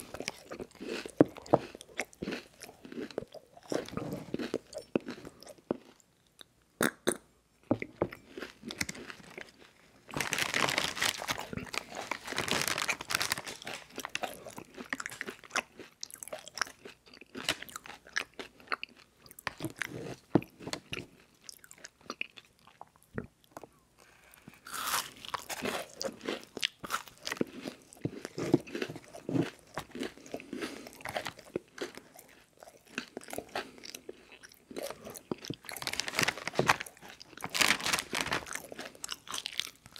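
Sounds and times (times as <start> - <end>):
soft chewing: 0.0 - 10.2, 11.1 - 39.9
crunching crispy rice bars: 8.7 - 18.8, 24.5 - 39.9.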